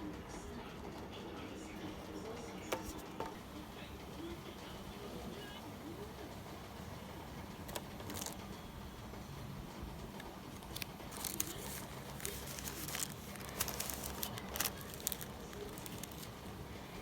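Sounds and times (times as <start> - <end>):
steady low hum: 2.8 - 17.0
materials crinkling and clicking: 7.4 - 8.6, 10.1 - 17.0.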